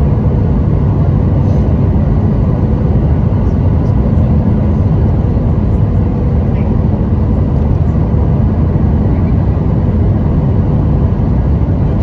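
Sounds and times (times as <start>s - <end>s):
jet engine and airflow rumble: 0.0s - 12.0s.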